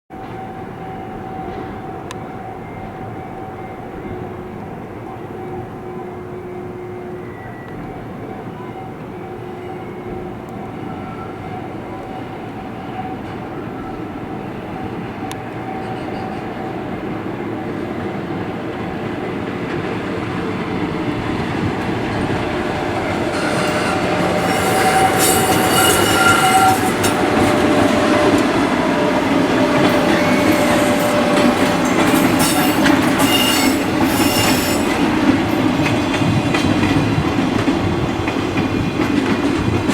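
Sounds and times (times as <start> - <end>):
train wheels squealing: 0.2 - 17.2, 22.0 - 37.0
freight train wheels clattering: 18.3 - 39.9.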